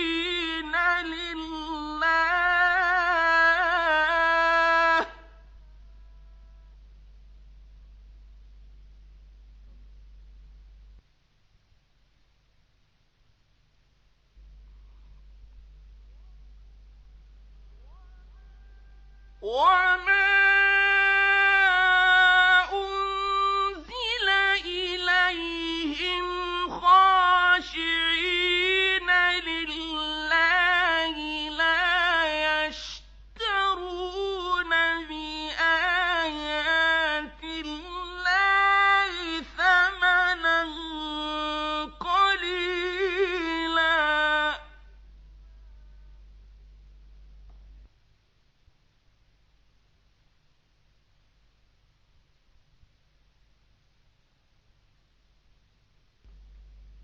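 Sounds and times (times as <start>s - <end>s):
man chanting: 0.0s - 6.8s, 17.7s - 44.9s.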